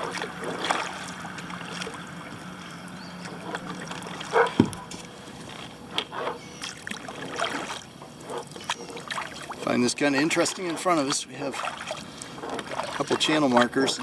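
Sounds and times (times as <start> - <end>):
paddle splashing water: 0.0 - 14.0.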